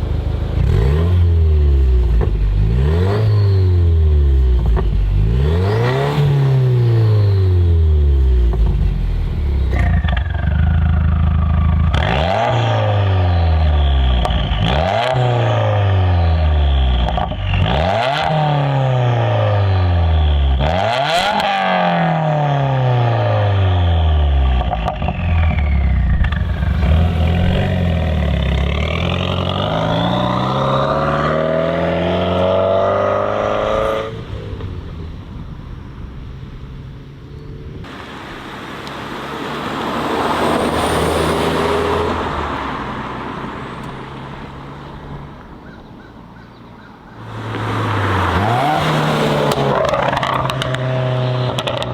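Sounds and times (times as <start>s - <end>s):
car engine accelerating hard: 0.0s - 45.4s, 47.2s - 51.9s
car passing by: 37.9s - 45.0s, 47.2s - 50.4s.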